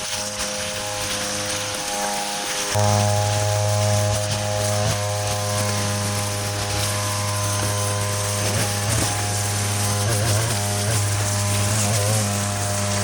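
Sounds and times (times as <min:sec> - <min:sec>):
string trimmer engine cutting grass: 0:00.0 - 0:13.0.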